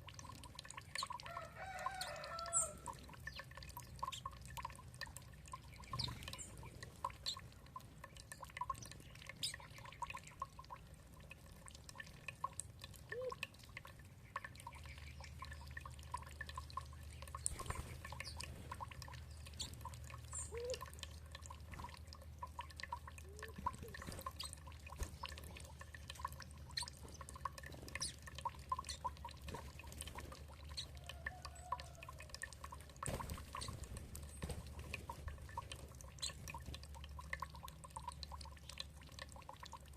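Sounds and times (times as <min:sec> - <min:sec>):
water dripping and trickling: 0:00.0 - 0:39.9
bird chirps: 0:05.8 - 0:06.6.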